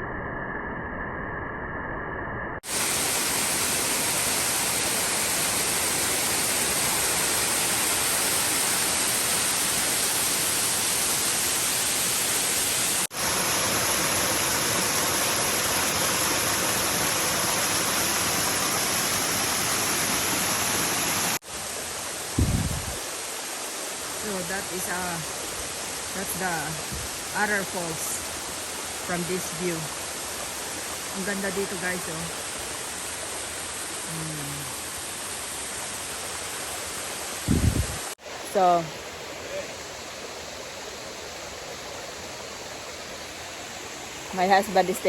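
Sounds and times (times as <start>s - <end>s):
waterfall rushing: 2.6s - 34.0s.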